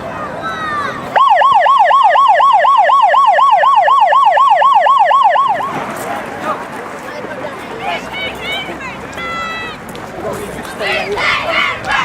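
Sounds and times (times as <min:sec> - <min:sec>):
siren yelping: 0:01.2 - 0:05.8.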